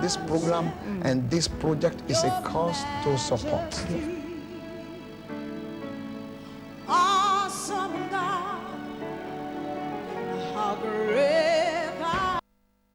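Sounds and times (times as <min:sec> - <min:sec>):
person singing with vibrato: 0:00.0 - 0:05.2, 0:06.8 - 0:12.4
held accompanying chords: 0:00.0 - 0:12.4.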